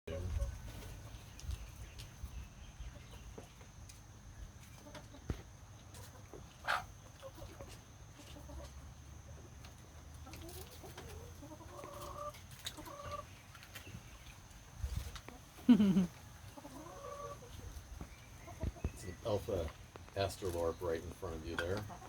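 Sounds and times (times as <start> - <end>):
hens clucking: 0.1 - 22.0
short clucking calls: 15.6 - 16.2.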